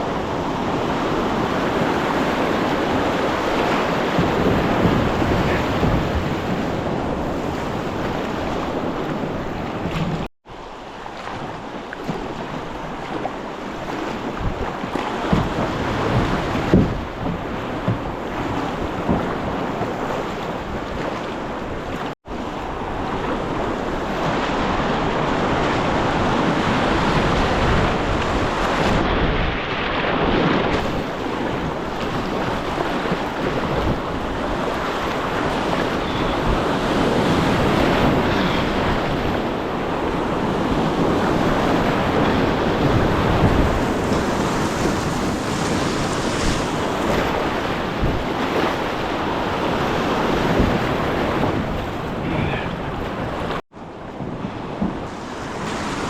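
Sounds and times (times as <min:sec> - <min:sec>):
wind buffeting microphone: 0:00.0 - 0:10.3, 0:11.4 - 0:56.0
river water rushing: 0:55.0 - 0:56.0.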